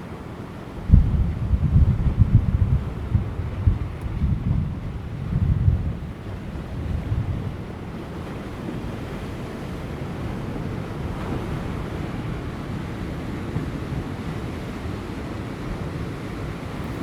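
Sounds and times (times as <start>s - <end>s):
wind buffeting microphone: 0.7s - 17.0s
ocean waves breaking on rocks: 5.7s - 17.0s.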